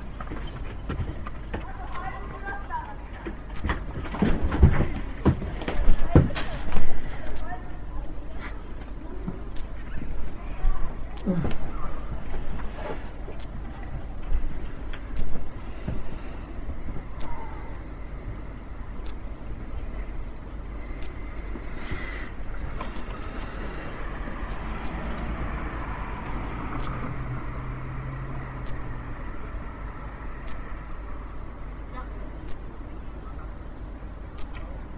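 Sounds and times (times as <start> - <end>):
low steady hum: 0.0 - 34.9
motor vehicle running: 21.5 - 31.4.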